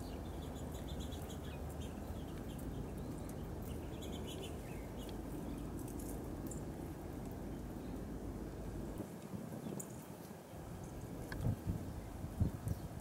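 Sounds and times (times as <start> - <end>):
birds chirping: 0.0 - 9.0
low background rumble: 0.0 - 9.0.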